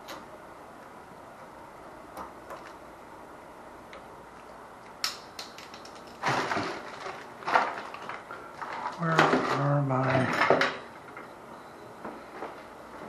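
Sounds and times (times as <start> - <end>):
rattling rummage: 5.6 - 10.8.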